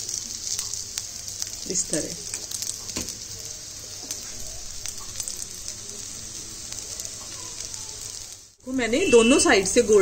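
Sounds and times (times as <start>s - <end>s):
patties sizzling in oil: 0.0s - 10.0s.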